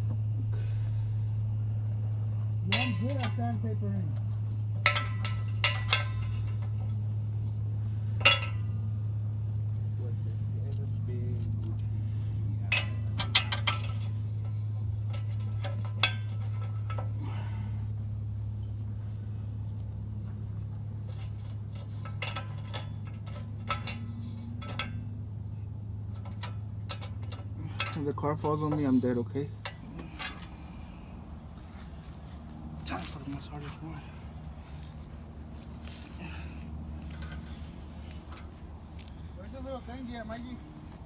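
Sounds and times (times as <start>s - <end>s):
low hum: 0.0s - 41.0s
metal tools clinking: 1.7s - 9.8s, 10.5s - 12.0s, 12.6s - 17.9s, 20.3s - 41.0s.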